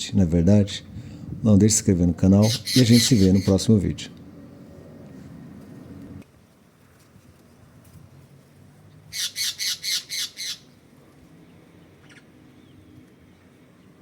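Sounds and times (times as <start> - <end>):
bird harsh squawks: 2.4 - 3.7, 9.1 - 10.8.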